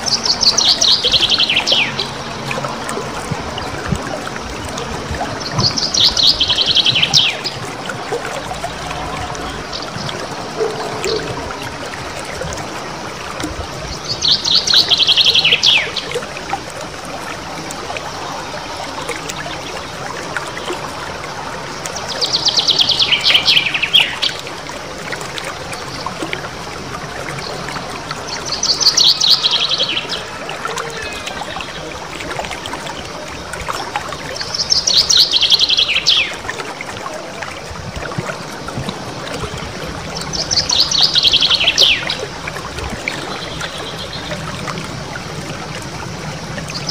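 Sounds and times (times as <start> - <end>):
songbird trilling: 5.4 - 7.6, 9.6 - 11.8, 14.0 - 16.1, 40.2 - 42.2.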